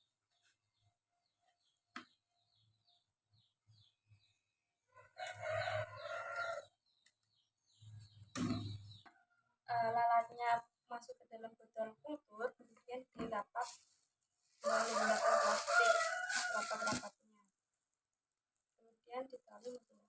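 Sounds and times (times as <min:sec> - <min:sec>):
small birds chirping: 0:00.2 - 0:10.7
rooster crowing: 0:05.0 - 0:06.7, 0:14.6 - 0:17.0.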